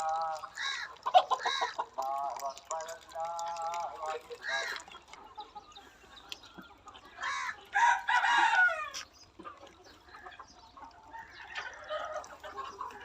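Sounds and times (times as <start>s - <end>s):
hens clucking: 0.0s - 13.0s
rooster crowing: 7.2s - 9.0s.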